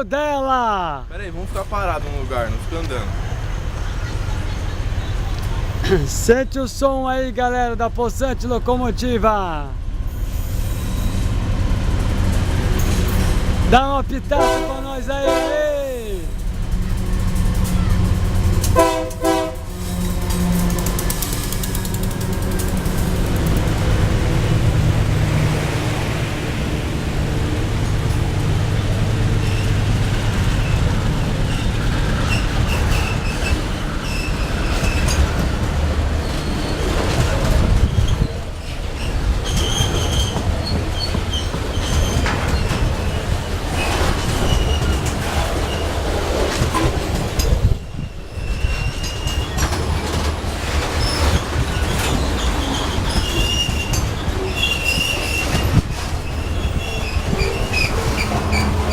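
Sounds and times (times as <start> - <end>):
freight train rumbling: 0.0 - 58.9
train wheels squealing: 10.1 - 11.4, 29.4 - 29.9, 30.5 - 35.4, 36.2 - 46.0, 46.7 - 58.9.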